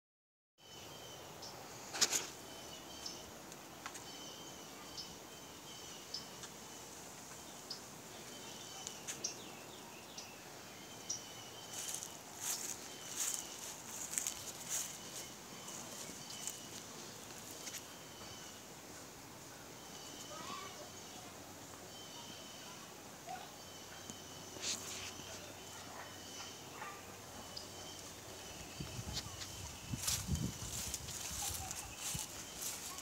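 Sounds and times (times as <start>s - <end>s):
high bird chirps: 11.0s - 16.8s, 23.8s - 33.0s
footsteps on grass and mulch: 11.6s - 18.0s, 24.6s - 25.9s, 27.7s - 33.0s.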